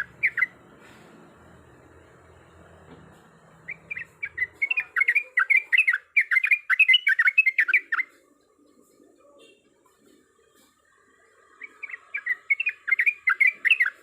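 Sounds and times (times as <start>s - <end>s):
bird singing rapid bubbly phrase: 0.0s - 0.5s, 3.7s - 8.1s, 11.6s - 14.0s.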